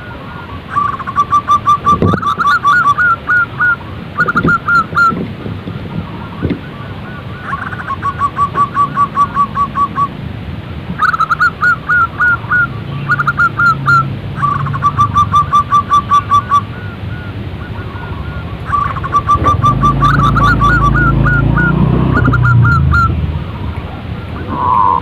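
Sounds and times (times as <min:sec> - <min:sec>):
doves cooing: 0:00.0 - 0:10.2, 0:10.9 - 0:25.0.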